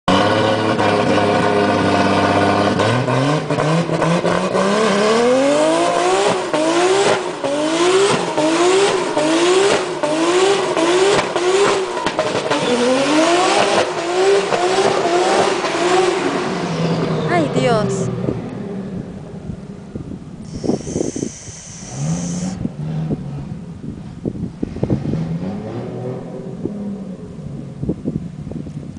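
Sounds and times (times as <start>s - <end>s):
car engine revving: 0.1s - 17.2s, 20.4s - 24.0s.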